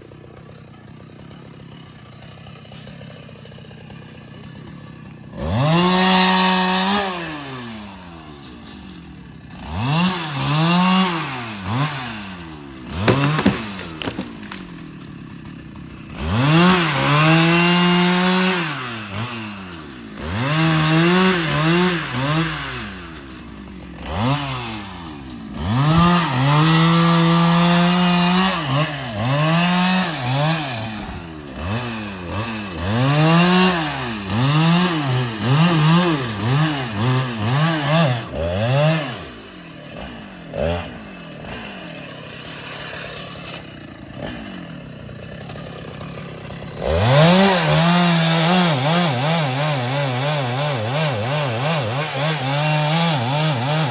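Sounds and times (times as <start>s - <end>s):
chainsaw revving cutting wood: 0.0s - 53.9s.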